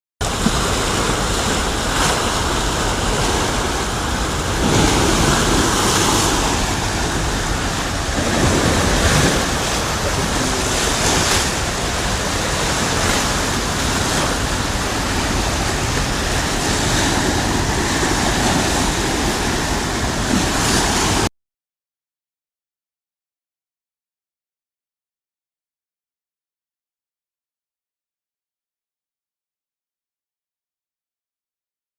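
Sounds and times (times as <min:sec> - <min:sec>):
rushing floodwater: 0:00.2 - 0:21.3.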